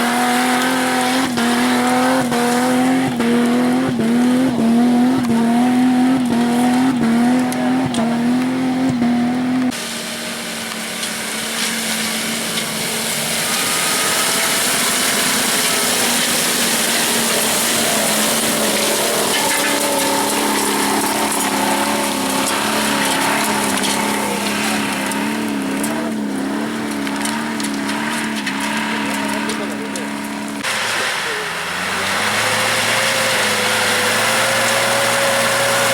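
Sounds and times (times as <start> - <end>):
engine straining uphill: 0.0 - 35.9
off-road engine at high revs: 0.0 - 35.9
tyres hissing on gravel: 9.7 - 35.9
stones clicking under tyres: 10.7 - 31.0.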